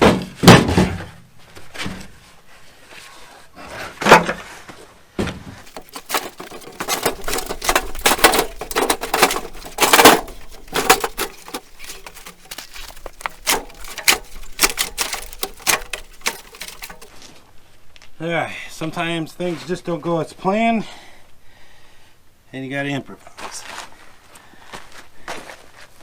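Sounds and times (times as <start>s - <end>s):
heavy generator knocking and scraping: 5.6s - 17.1s.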